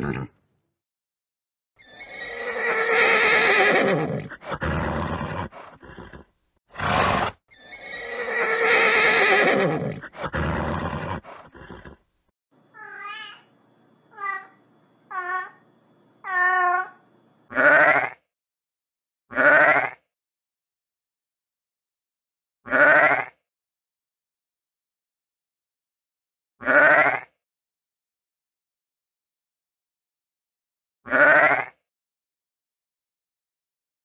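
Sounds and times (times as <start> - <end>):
horse snorting: 0.0 - 0.3, 3.4 - 12.0
horse whinnying: 0.0 - 0.3, 1.8 - 12.0.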